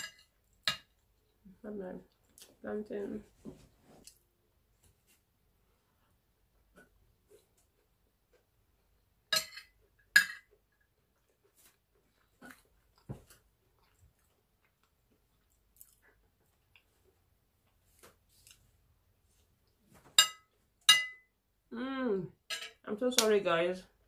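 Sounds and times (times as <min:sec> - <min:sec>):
soft chewing mouth sounds: 0:00.4 - 0:02.6, 0:03.9 - 0:04.2, 0:10.6 - 0:19.8.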